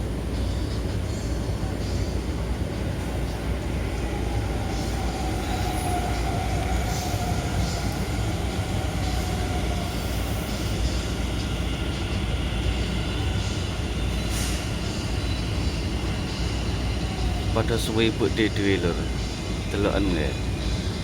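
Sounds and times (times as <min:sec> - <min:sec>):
faint train whine: 0:00.0 - 0:21.0
train low rumble: 0:00.0 - 0:21.0.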